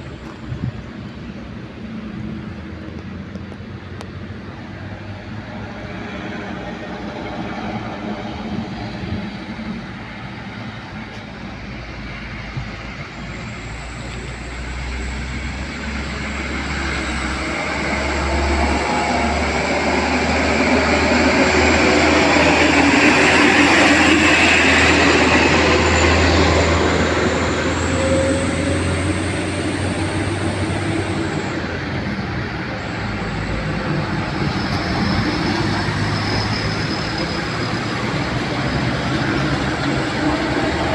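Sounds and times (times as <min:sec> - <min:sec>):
truck engine and tyres passing: 0:00.0 - 0:40.9
thin high whine: 0:13.3 - 0:40.9.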